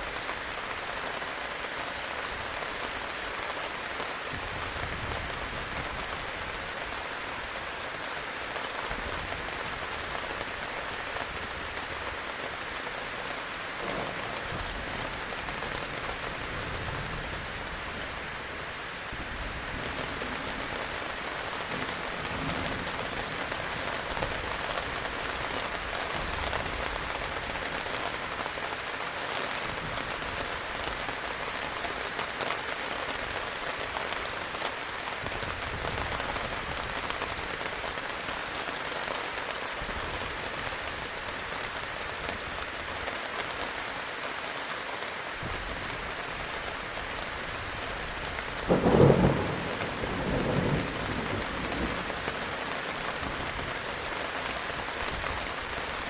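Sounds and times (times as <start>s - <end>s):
heavy rain falling: 0.0s - 56.0s
thunder clap: 48.7s - 52.5s.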